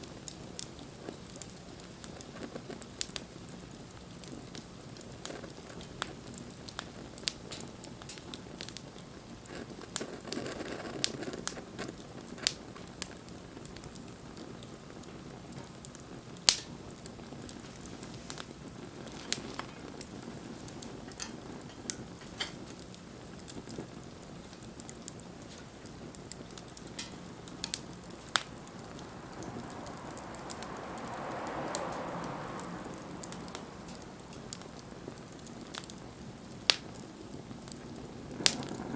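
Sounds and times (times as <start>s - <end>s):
wood fire crackling: 0.0s - 38.9s
soft rushing: 27.7s - 35.0s.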